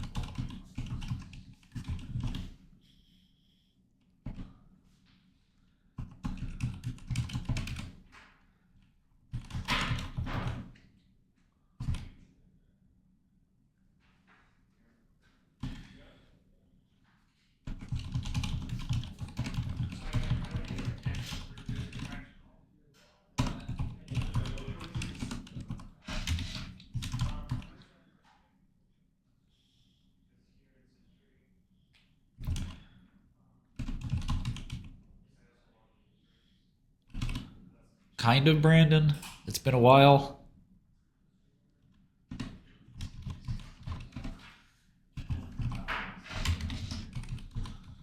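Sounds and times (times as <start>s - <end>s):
keyboard typing: 0.0s - 2.6s, 6.0s - 8.0s, 9.3s - 10.7s, 17.7s - 22.2s, 23.4s - 27.8s, 33.8s - 35.0s, 37.1s - 37.6s, 42.3s - 44.5s, 45.2s - 48.0s.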